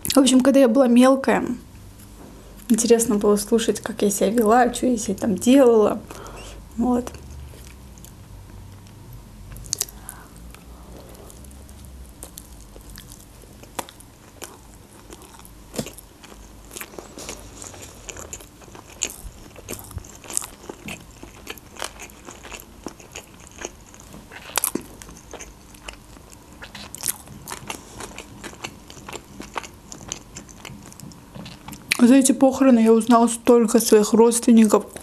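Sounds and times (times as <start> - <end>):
close chewing with mouth clicks: 7.0 - 32.0.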